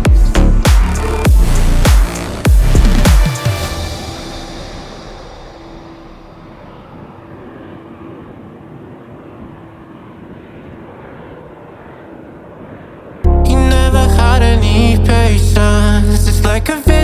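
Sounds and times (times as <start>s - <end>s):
loud music: 0.0s - 6.6s, 13.3s - 17.0s
jet engines rumbling: 1.0s - 13.9s.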